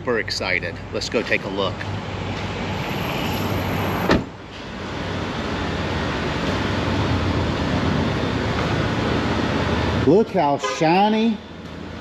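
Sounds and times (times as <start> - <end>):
vehicle hum: 0.0 - 10.2
car door shutting: 3.4 - 4.4.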